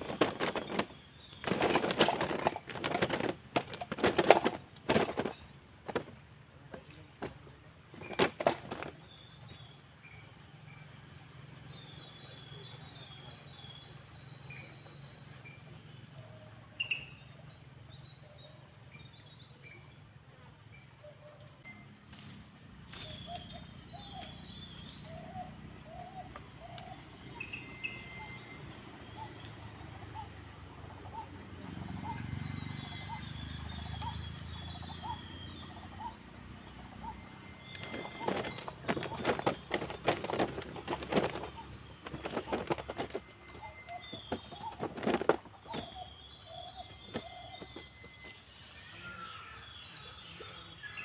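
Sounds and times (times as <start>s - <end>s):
rustling and knocking: 0.0s - 9.0s, 37.8s - 46.1s.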